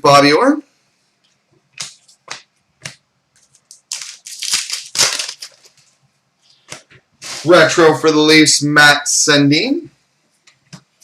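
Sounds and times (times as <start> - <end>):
cards rustling and scraping: 3.4 - 5.9.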